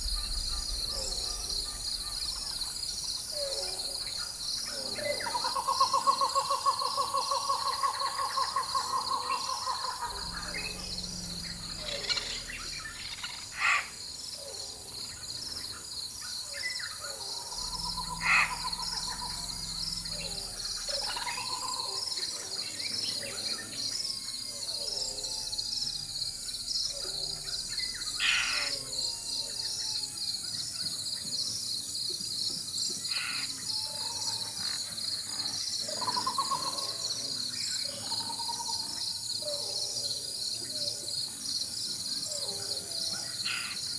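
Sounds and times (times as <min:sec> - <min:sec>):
distant thunder rumble: 0:00.0 - 0:05.6, 0:09.9 - 0:16.0, 0:17.6 - 0:22.3
birds calling: 0:00.0 - 0:25.4
insects chorus: 0:00.0 - 0:43.9.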